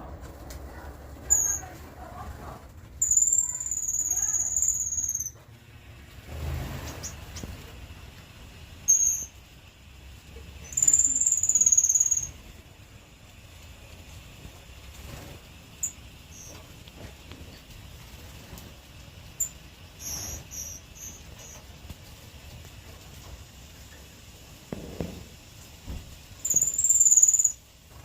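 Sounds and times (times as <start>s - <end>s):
lower bird chirps: 1.3s - 1.7s, 3.0s - 5.4s, 8.8s - 9.4s, 10.6s - 12.4s, 19.4s - 21.6s, 26.4s - 27.7s
finches high thin whistles: 3.0s - 5.4s, 8.8s - 9.4s, 10.6s - 12.4s, 19.4s - 21.6s, 26.4s - 27.6s.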